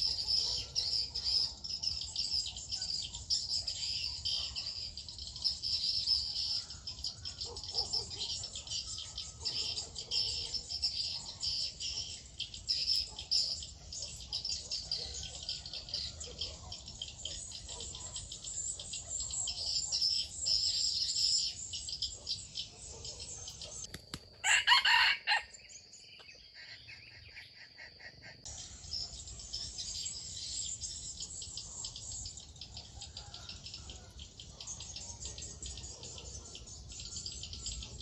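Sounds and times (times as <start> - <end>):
rooster crowing: 24.4 - 25.6.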